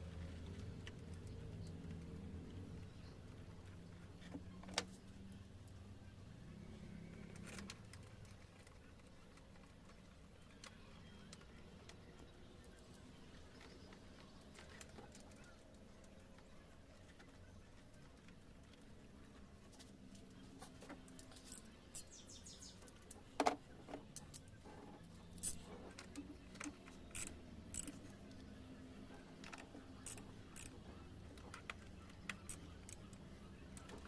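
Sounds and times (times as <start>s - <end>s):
hand tools clicking and tapping: 29.4s - 34.0s.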